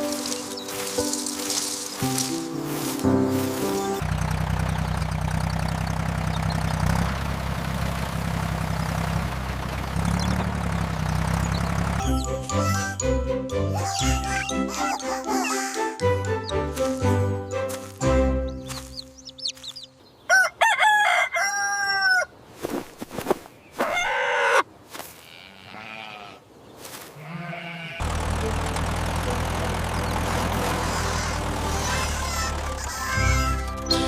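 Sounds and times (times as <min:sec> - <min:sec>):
music: 0:00.0 - 0:04.0, 0:12.0 - 0:19.5, 0:28.1 - 0:34.0
engine running: 0:00.0 - 0:12.7, 0:28.0 - 0:34.0
rooster crowing: 0:20.3 - 0:22.3.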